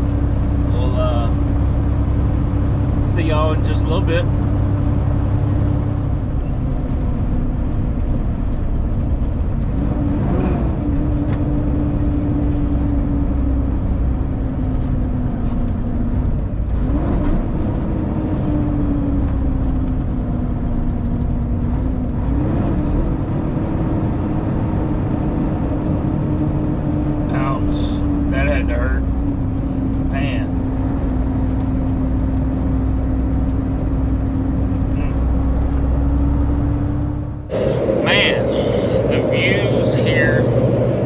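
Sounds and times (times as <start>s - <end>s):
truck diesel engine droning: 0.0s - 16.2s, 25.4s - 41.0s
road noise: 0.0s - 41.0s.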